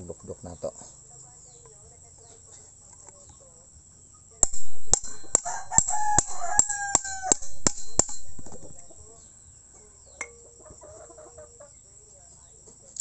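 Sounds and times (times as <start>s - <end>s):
hammer striking metal: 4.4s - 9.0s
rooster crowing: 5.0s - 8.9s.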